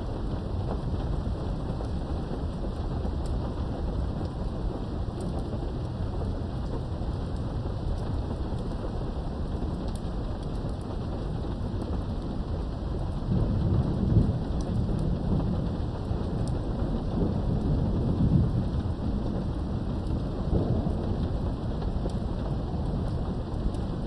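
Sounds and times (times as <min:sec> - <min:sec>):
rain falling: 0:00.0 - 0:24.0
rolling thunder: 0:11.0 - 0:24.0.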